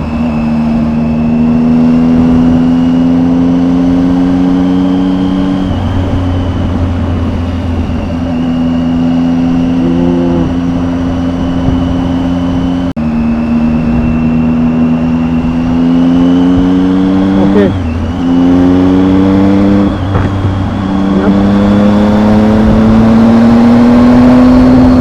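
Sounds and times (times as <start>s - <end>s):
motorcycle engine running: 0.0s - 25.0s
muffled wind noise: 0.0s - 25.0s.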